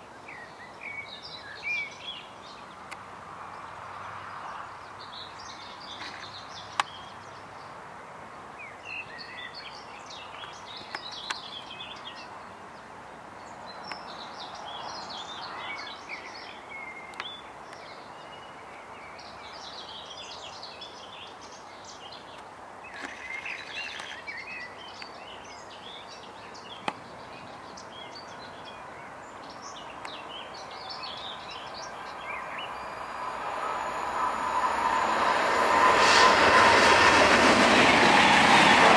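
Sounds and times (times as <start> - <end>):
small birds chirping: 8.6 - 33.2
approaching train: 31.2 - 38.9.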